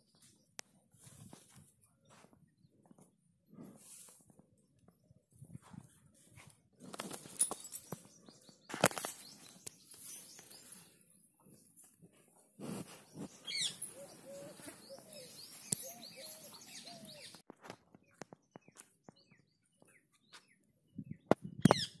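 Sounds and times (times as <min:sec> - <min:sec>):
birds chirping and calling: 0:07.2 - 0:11.9, 0:12.7 - 0:17.4, 0:18.1 - 0:22.0.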